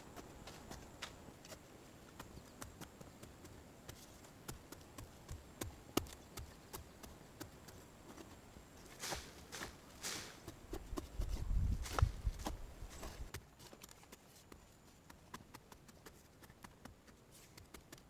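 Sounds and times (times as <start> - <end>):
light taps and clicks of sticks: 0.1 - 18.0
rustling swishes: 8.8 - 13.3.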